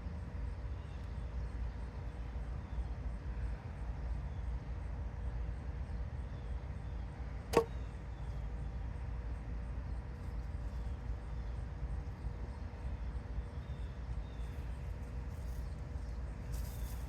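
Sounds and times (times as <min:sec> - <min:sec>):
steady low rumble: 0:00.0 - 0:17.0
sharp knock: 0:07.5 - 0:07.7.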